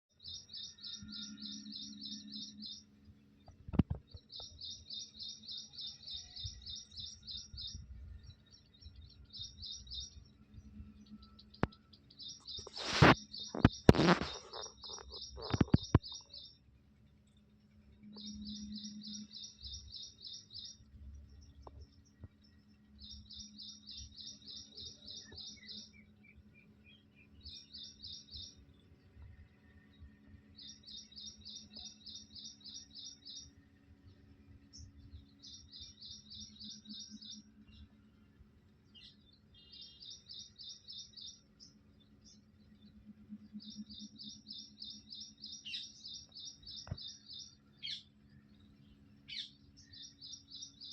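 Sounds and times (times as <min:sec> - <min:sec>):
bird chirping in trills: 0:00.1 - 0:16.6, 0:17.4 - 0:50.9.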